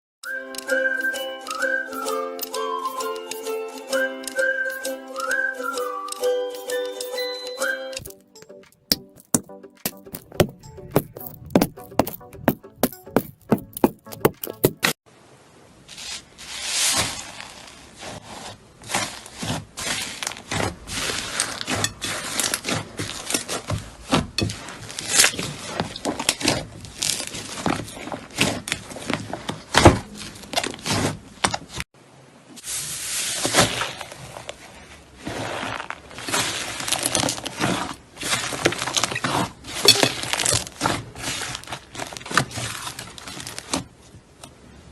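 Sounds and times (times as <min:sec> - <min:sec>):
music with a regular beat: 0:08.1 - 0:15.0.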